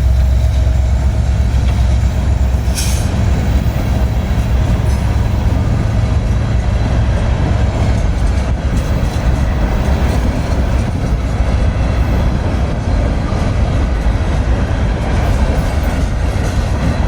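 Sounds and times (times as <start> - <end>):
train rumbling past: 0.0 - 17.0.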